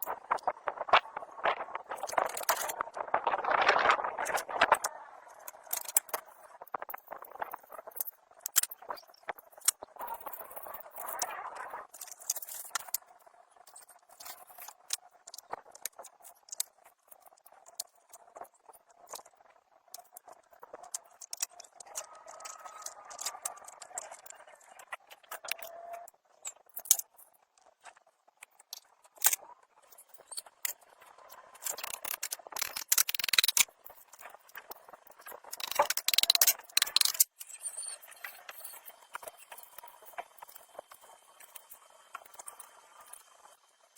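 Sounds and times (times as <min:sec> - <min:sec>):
clicks taps and rattles of parts: 0:05.4 - 0:10.8, 0:20.0 - 0:24.4, 0:31.6 - 0:37.5.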